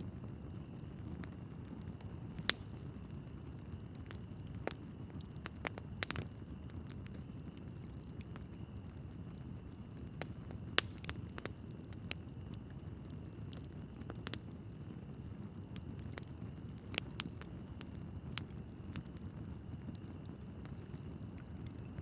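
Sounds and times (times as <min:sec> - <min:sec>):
fire crackles and pops: 0:00.0 - 0:22.0
low rumble of flame: 0:00.0 - 0:22.0.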